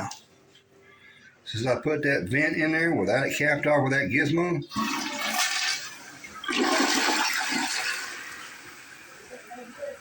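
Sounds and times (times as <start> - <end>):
toilet flushing: 4.7 - 10.0.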